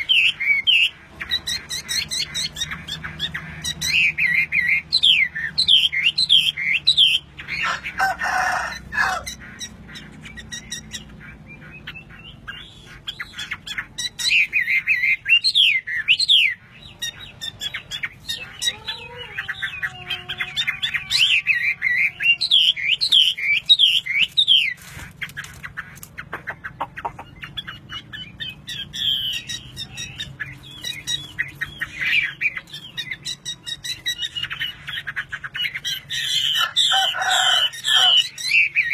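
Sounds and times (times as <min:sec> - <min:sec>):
low gliding bird call: 0:00.0 - 0:24.8
songbird chirping and whistling: 0:00.0 - 0:25.7, 0:26.4 - 0:38.9.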